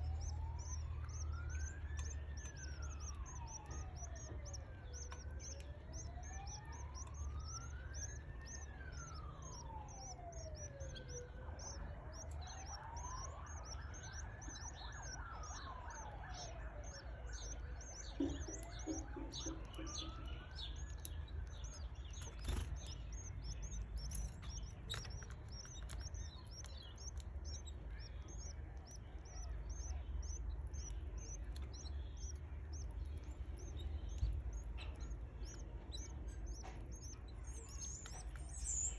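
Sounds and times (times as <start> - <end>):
chicks cheeping: 0.0 - 38.9
siren wailing: 0.0 - 38.9.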